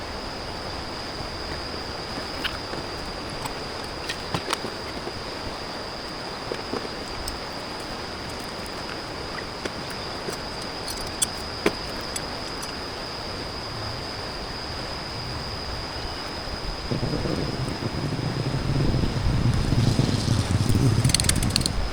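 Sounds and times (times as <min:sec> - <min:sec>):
high-pitched insect drone: 0:00.0 - 0:21.9
sharp ticks: 0:09.6 - 0:12.8, 0:19.5 - 0:21.8.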